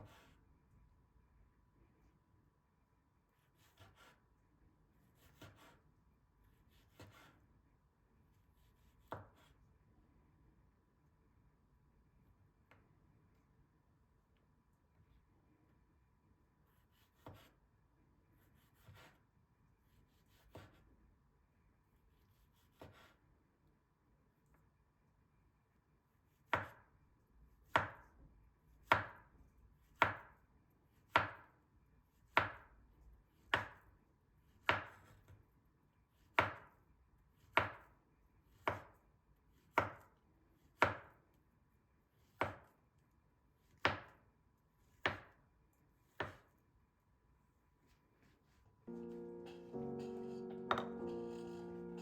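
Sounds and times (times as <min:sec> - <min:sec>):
knife chopping on cutting board: 0:03.5 - 0:04.2, 0:05.2 - 0:05.8, 0:06.6 - 0:07.4, 0:08.6 - 0:09.6, 0:16.7 - 0:17.6, 0:18.4 - 0:19.2, 0:20.1 - 0:20.8, 0:22.3 - 0:23.2, 0:26.5 - 0:26.8, 0:27.6 - 0:28.1, 0:28.8 - 0:29.2, 0:29.9 - 0:30.4, 0:31.1 - 0:31.5, 0:32.3 - 0:32.7, 0:33.4 - 0:33.8, 0:34.6 - 0:35.4, 0:36.3 - 0:36.8, 0:37.4 - 0:37.9, 0:38.5 - 0:39.0, 0:39.6 - 0:41.2, 0:42.2 - 0:42.7, 0:43.7 - 0:44.2, 0:44.9 - 0:45.4, 0:46.0 - 0:46.6.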